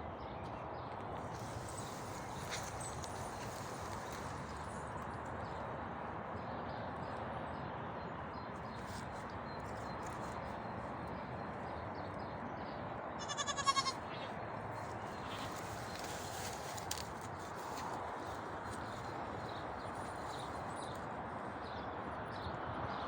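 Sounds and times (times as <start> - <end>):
goat kid bleating: 13.2 - 14.3.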